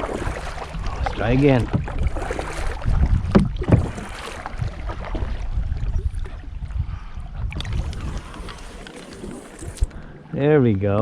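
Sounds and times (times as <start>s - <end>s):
paddle knocks and splashes: 0.0s - 6.7s
paddle strokes in water: 0.0s - 10.3s.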